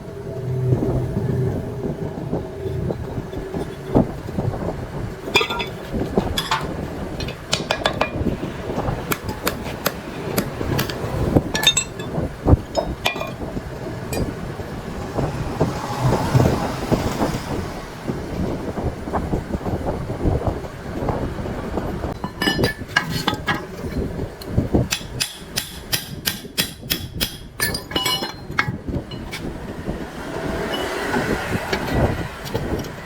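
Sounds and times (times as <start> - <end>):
metal tools clinking on machine parts: 5.3 - 8.3, 11.6 - 13.4, 22.2 - 24.0, 27.6 - 29.3.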